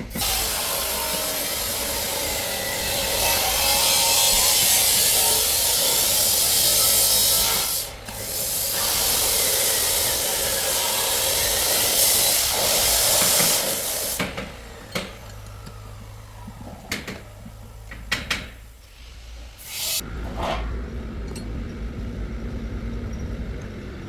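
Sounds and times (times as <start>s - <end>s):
workshop tool rasping: 0.0s - 18.6s.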